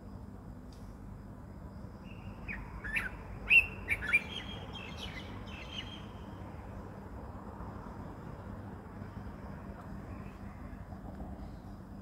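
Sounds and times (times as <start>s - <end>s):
low outdoor rumble: 0.0s - 12.0s
songbird chirping: 0.2s - 7.0s.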